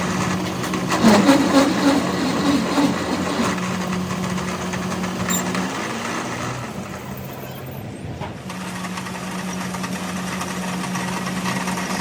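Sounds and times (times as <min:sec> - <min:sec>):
machine motor humming: 0:00.0 - 0:07.0.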